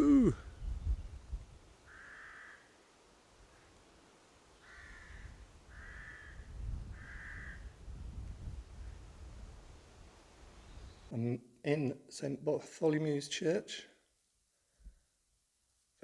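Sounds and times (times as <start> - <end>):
crow cawing: 1.9 - 2.7, 4.6 - 6.4, 7.0 - 7.7.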